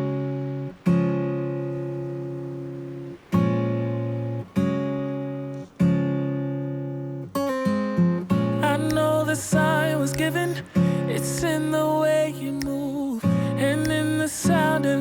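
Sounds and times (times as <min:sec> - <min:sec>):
acoustic guitar strumming chords: 0:00.0 - 0:15.0
person singing: 0:08.4 - 0:15.0.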